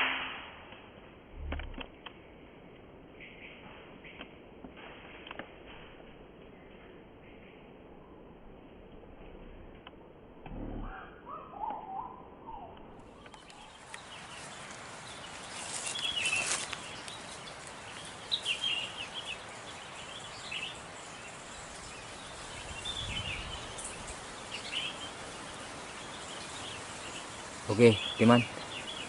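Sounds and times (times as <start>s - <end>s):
small birds chirping: 10.5s - 29.0s
outdoor hiss: 13.0s - 29.0s.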